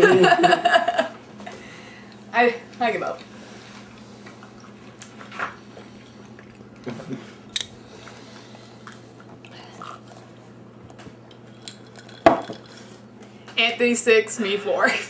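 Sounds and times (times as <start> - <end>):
person chewing: 3.2 - 13.0.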